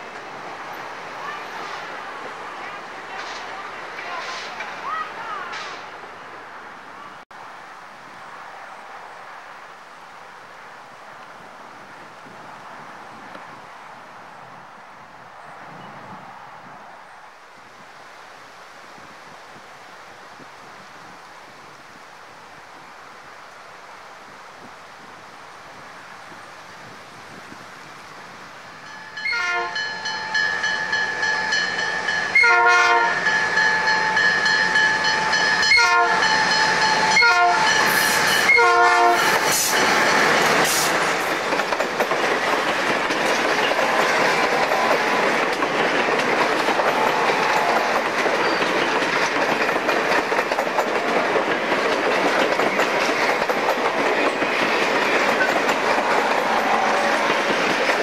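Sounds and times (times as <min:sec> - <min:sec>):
train wheels clattering on rails: 0:03.1 - 0:04.9, 0:05.5 - 0:05.9, 0:33.2 - 0:58.0
locomotive horn blasts: 0:29.2 - 0:30.2, 0:32.3 - 0:33.4, 0:35.6 - 0:39.4, 0:56.1 - 0:57.5.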